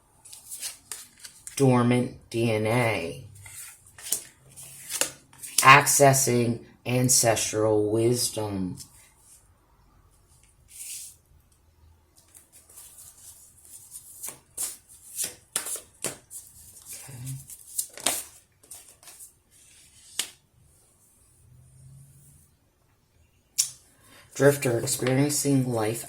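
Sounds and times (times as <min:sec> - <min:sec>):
cards being shuffled: 0:00.2 - 0:01.6, 0:03.3 - 0:05.6, 0:12.2 - 0:20.4.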